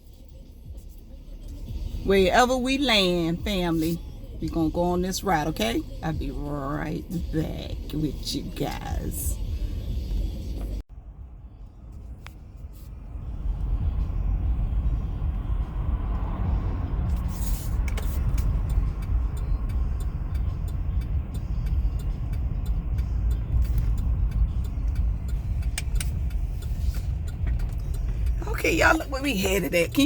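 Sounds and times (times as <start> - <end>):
road and engine rumble: 0.0 - 30.0.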